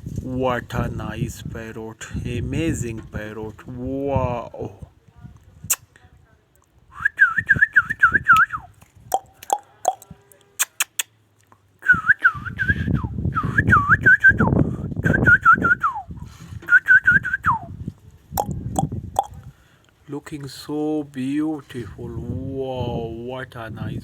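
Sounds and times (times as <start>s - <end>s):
person whistling: 7.0s - 8.7s, 11.8s - 14.5s, 15.1s - 16.1s, 16.7s - 17.7s
sharp clicks: 10.6s - 11.1s.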